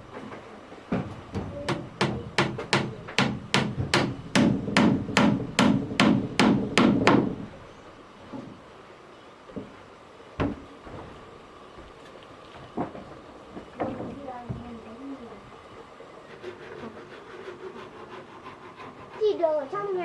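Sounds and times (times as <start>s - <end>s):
single knock: 1.3s - 7.6s
hammer blows: 1.3s - 7.7s.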